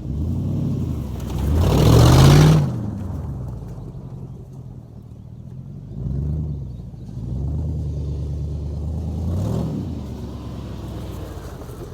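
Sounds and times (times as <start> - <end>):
car engine revving: 0.0 - 3.5, 5.9 - 11.9.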